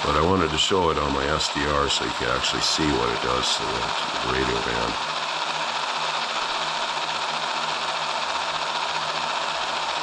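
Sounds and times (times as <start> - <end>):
radio static hiss: 0.0 - 5.1
faint hum: 0.0 - 7.3.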